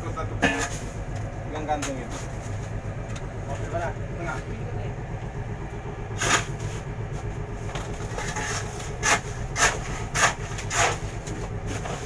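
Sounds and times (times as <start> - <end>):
boat engine droning: 0.0 - 12.0
short scraping sounds: 8.1 - 11.1.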